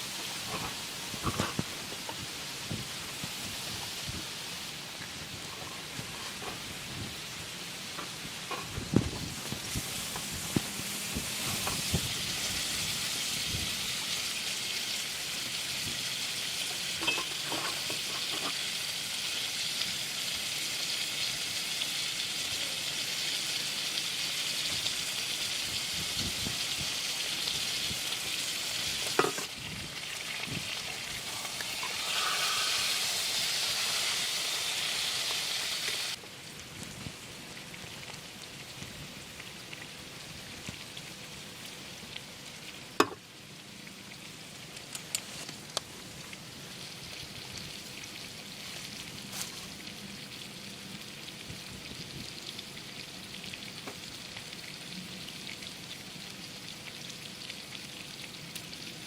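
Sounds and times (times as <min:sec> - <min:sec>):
heavy rain hissing: 0:00.0 - 0:17.0, 0:21.0 - 0:36.2.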